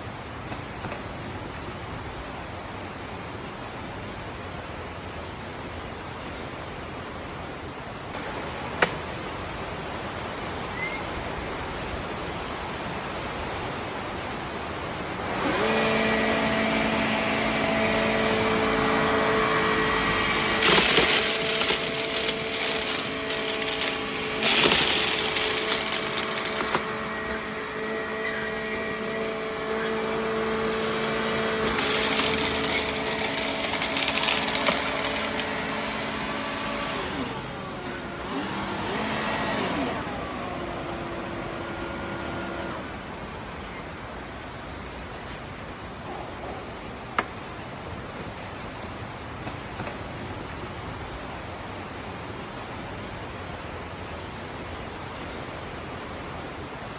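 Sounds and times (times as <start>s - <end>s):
vacuum cleaner hissing: 15.2s - 42.9s
vacuum motor whine: 15.2s - 43.4s.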